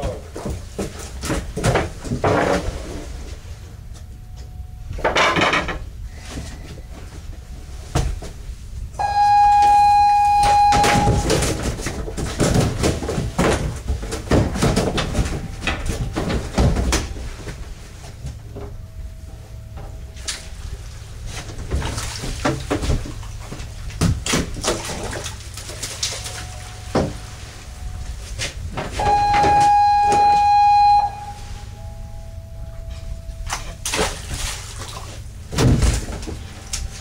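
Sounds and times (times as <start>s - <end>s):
low engine hum: 0.0s - 37.0s
steady high tone: 9.0s - 11.5s, 29.0s - 33.9s.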